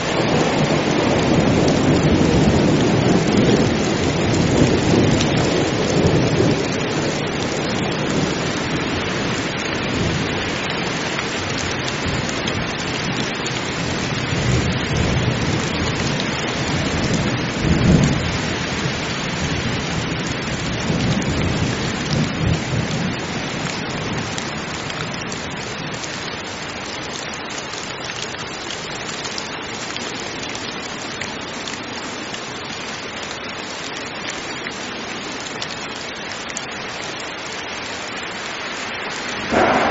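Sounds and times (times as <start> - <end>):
heavy rain falling: 0.0 - 39.9
thunder rolling: 39.4 - 39.9.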